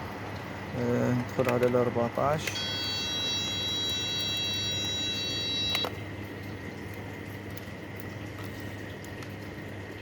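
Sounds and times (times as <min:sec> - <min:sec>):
low steady hum: 0:00.0 - 0:10.0
high-pitched electronic tone: 0:02.6 - 0:05.9.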